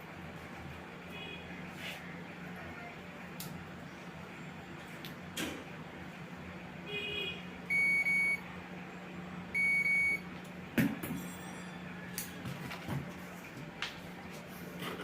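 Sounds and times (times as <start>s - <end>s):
electronic beeps: 7.7s - 8.4s, 9.5s - 10.2s.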